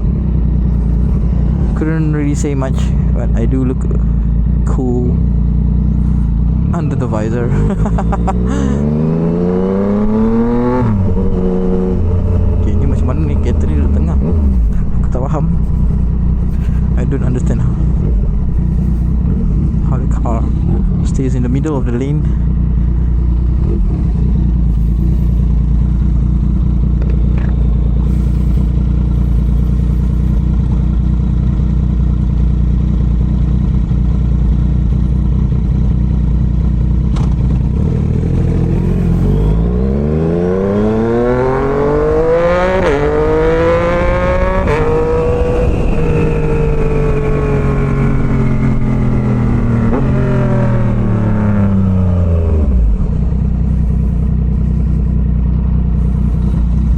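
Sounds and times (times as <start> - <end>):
motorcycle engine revving: 0.0 - 56.9
wind noise: 40.8 - 53.2.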